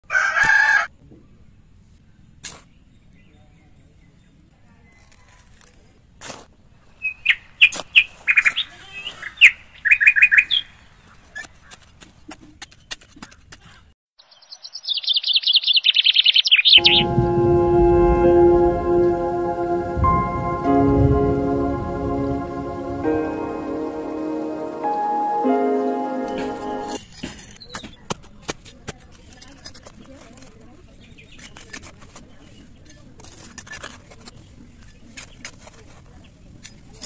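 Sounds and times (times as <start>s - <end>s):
small birds chirping: 12.6s - 16.8s.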